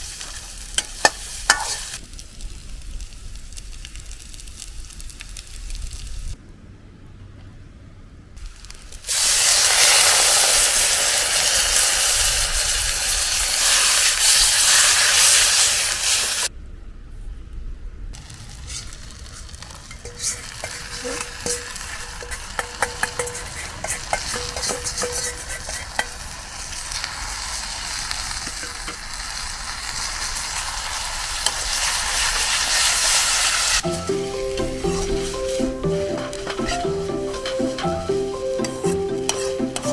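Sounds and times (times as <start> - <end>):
food sizzling in a wok: 0.0 - 6.4, 8.4 - 16.5, 18.2 - 39.9
spatula clicking against wok: 0.8 - 1.8, 20.0 - 26.2
music: 33.8 - 39.9.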